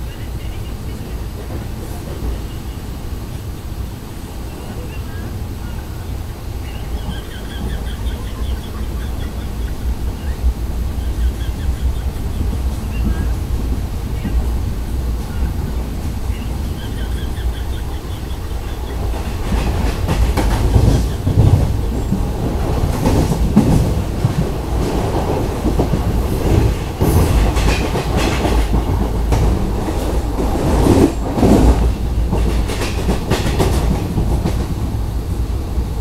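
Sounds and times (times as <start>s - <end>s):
train rumbling: 0.0s - 36.0s
wheels clattering over rail joints: 18.9s - 34.7s.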